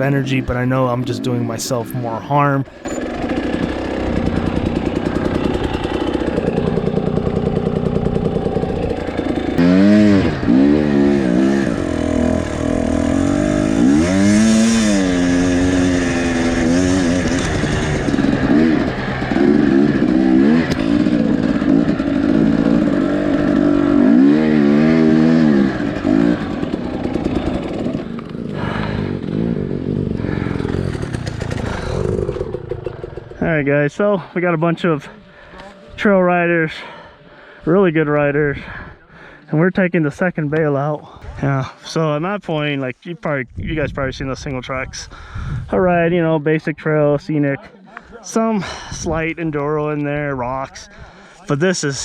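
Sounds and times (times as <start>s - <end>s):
two-stroke dirt bike engine revving: 0.0s - 33.6s.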